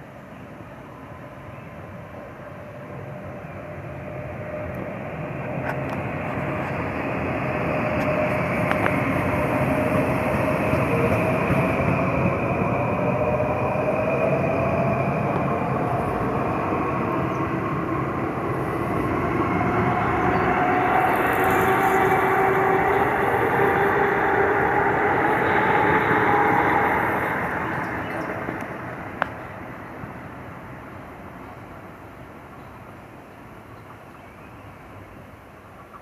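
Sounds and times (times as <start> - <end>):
train wheels rumbling on rail: 0.0 - 32.9
train motor whine rising: 3.4 - 29.2.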